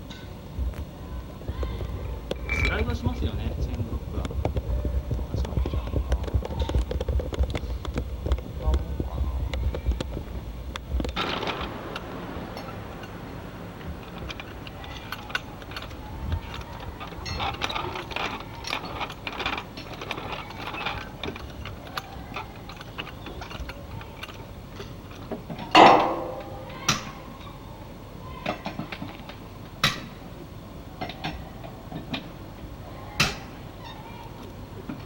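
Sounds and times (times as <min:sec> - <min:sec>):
loud metal clank with ring: 0:02.4 - 0:03.0, 0:25.7 - 0:27.3
metallic clicks and clanks: 0:09.5 - 0:27.6
sharp knocks: 0:25.8 - 0:27.1.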